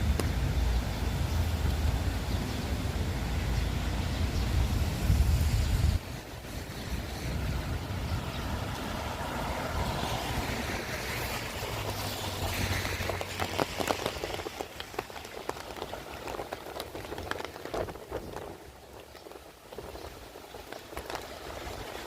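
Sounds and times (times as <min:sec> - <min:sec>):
vehicle engine hum: 0:00.0 - 0:16.1
rain on a wet street: 0:00.0 - 0:22.0.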